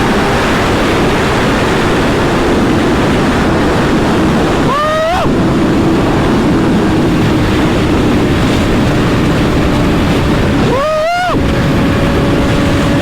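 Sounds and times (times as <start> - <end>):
motorcycle engine drone: 0.0 - 13.0
wind rushing over microphone: 0.0 - 13.0.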